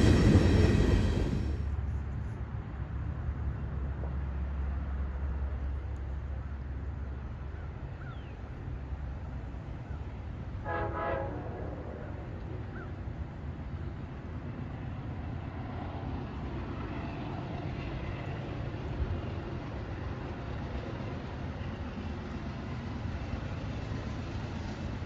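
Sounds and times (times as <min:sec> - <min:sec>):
steady low rumble: 0:00.0 - 0:02.1
train horn blast: 0:10.6 - 0:12.2.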